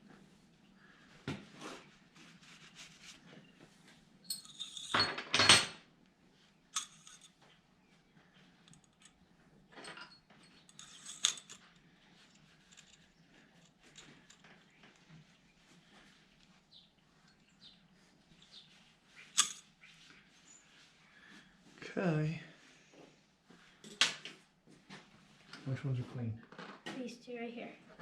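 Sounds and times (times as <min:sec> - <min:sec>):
metal tools clinking and clattering: 0:04.2 - 0:05.8, 0:06.8 - 0:07.6, 0:08.6 - 0:15.1, 0:19.3 - 0:19.6.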